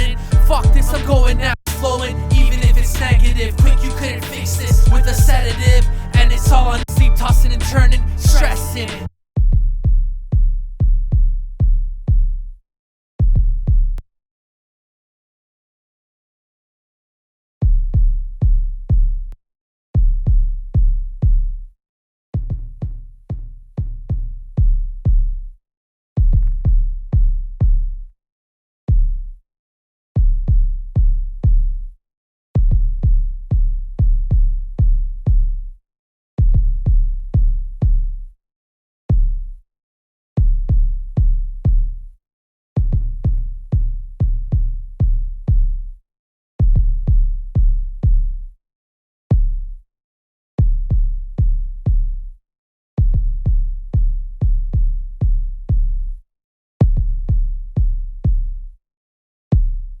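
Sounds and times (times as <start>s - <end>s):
drum machine bass drum hits: 0.0s - 8.7s, 42.8s - 45.7s, 46.6s - 48.2s, 56.8s - 58.4s.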